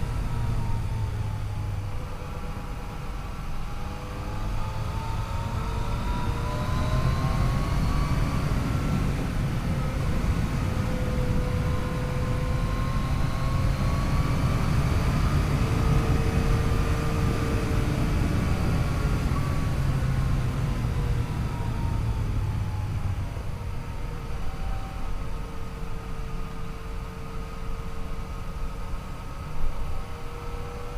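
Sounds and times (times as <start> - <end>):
wind noise: 4.1 - 24.2.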